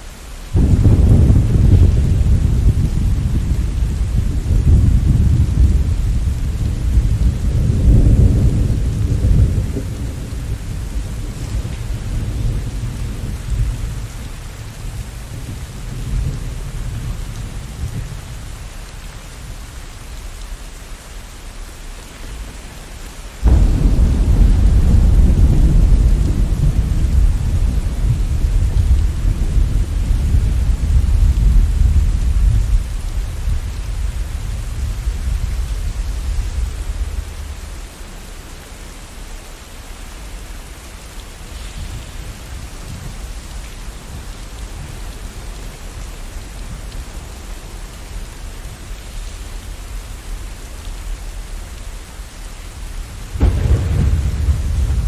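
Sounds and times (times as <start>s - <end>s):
steady rain: 0.0s - 55.0s
thunder rumbling: 0.5s - 19.8s, 22.3s - 55.0s
thunder clap: 0.6s - 18.5s, 23.4s - 38.0s, 53.2s - 55.0s.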